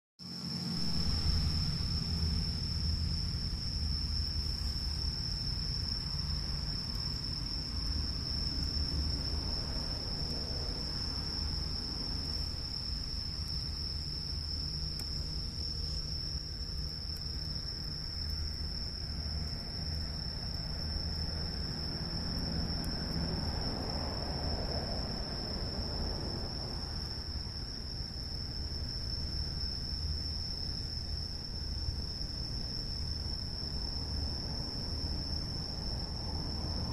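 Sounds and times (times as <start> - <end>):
insects chorus: 0.2 - 36.9
low rumble: 0.5 - 17.0.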